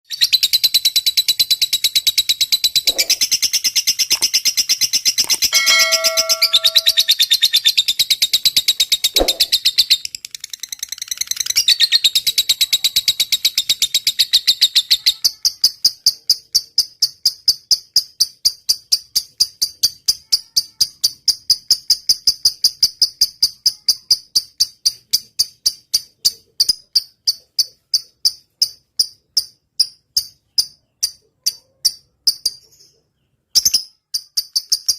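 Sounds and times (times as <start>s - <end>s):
sharp repeated bird chirps: 0.1s - 20.2s, 21.8s - 34.9s
bird chattering song: 0.1s - 20.4s, 30.1s - 34.9s.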